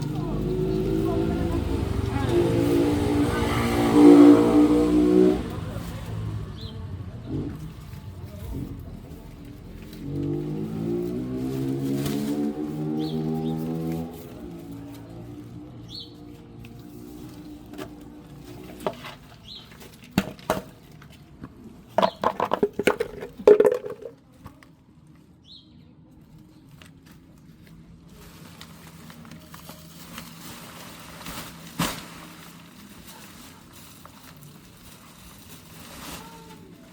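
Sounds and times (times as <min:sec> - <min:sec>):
objects clicking and knocking: 0:17.7 - 0:24.6.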